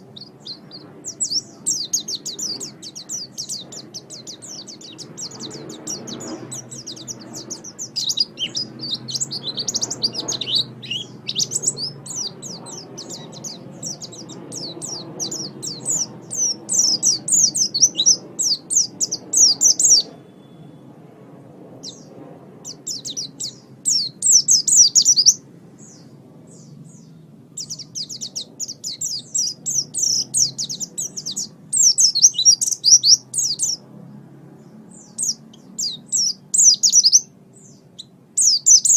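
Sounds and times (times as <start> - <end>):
bird twittering chirps: 0.0 - 20.9, 21.8 - 33.8, 34.6 - 38.9.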